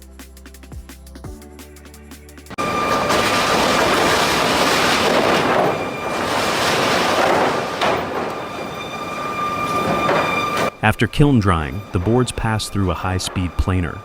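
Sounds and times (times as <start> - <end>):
machinery high whine: 2.5 - 14.0
sawmill machinery clatter: 2.6 - 14.0.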